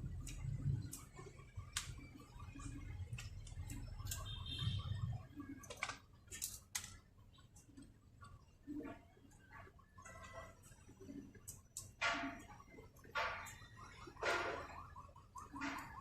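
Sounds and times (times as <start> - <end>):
clicks of small plastic parts: 5.6 - 7.0.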